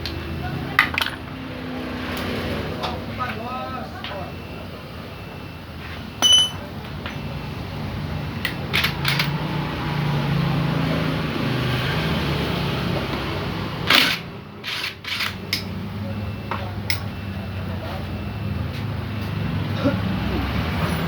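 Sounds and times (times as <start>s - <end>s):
metal hand tools clinking: 6.2s - 6.6s.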